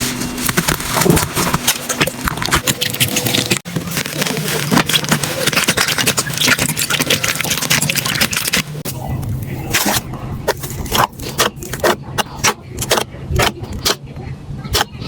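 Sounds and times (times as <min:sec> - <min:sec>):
slime crackling and popping: 0:01.8 - 0:08.7.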